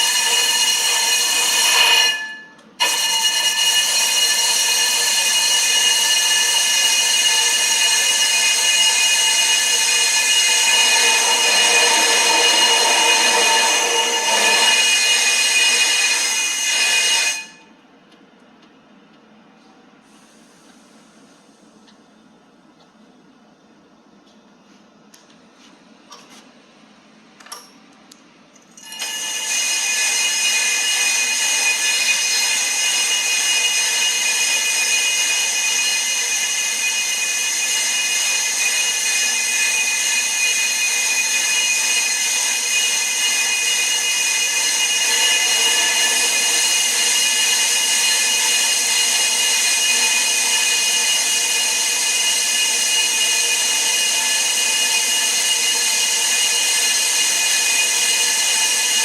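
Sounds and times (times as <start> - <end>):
brake lathe cutting rotor: 0.0 - 17.6, 28.8 - 59.0.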